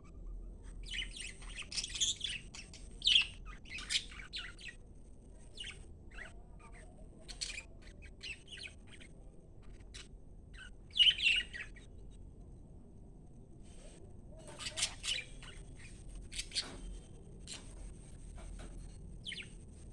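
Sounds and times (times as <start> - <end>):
budgerigars chirping and squawking: 0.9 - 4.8, 5.6 - 11.9, 14.4 - 17.8, 18.4 - 19.5.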